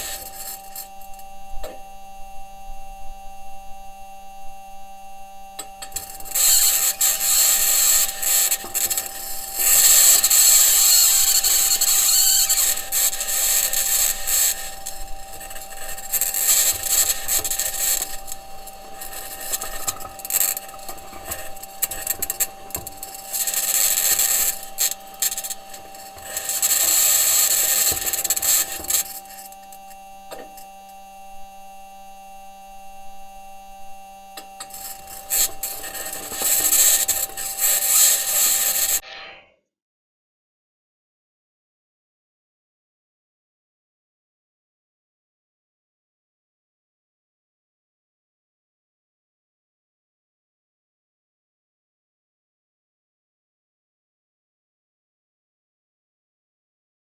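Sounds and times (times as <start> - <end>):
high-pitched scraping: 0.0 - 1.2, 5.8 - 30.7, 34.4 - 39.4
steady electrical hum: 0.0 - 39.0.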